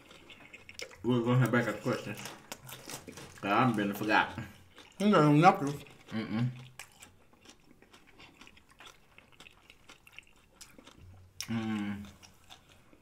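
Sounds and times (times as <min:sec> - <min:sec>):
chewing with wet smacks: 0:00.0 - 0:13.0
person humming: 0:11.4 - 0:12.0.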